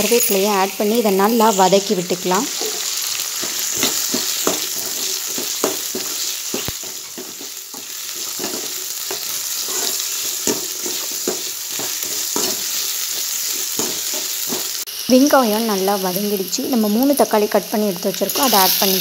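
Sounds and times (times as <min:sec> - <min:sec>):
vegetables sizzling in hot oil: 0:00.0 - 0:19.0
ladle scraping a pan: 0:02.6 - 0:12.7.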